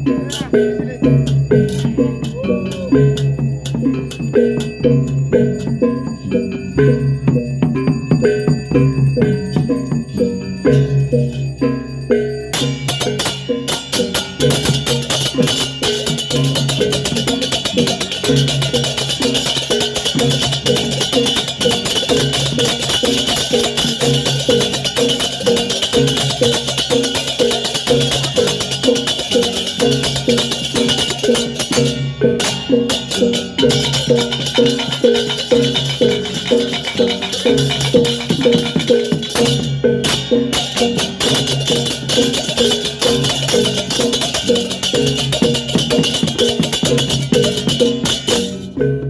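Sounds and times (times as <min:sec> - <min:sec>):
small clashing cymbals: 0:00.0 - 0:48.8
tuned bronze percussion: 0:00.0 - 0:49.0.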